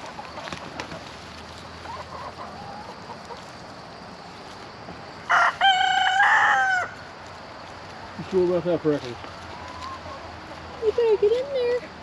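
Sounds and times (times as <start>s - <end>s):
chickens clucking faintly: 0.0s - 12.0s
rooster crowing: 5.3s - 7.1s.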